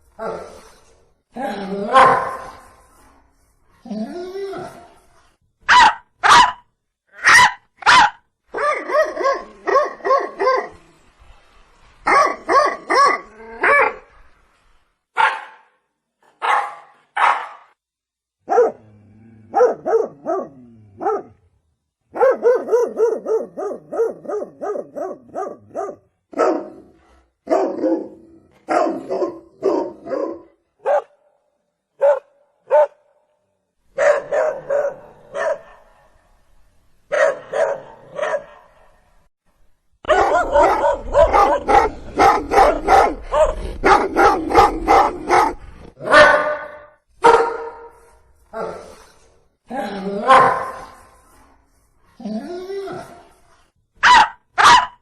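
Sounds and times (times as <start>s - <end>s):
dog barking: 1.9s - 2.6s, 5.7s - 6.6s, 7.2s - 10.8s, 12.1s - 14.0s, 15.2s - 15.7s, 16.4s - 17.7s, 18.4s - 18.8s, 19.5s - 21.4s, 22.1s - 26.8s, 27.4s - 31.2s, 32.0s - 33.1s, 34.0s - 36.0s, 37.1s - 38.8s, 40.0s - 48.0s, 50.3s - 50.9s, 54.0s - 55.0s.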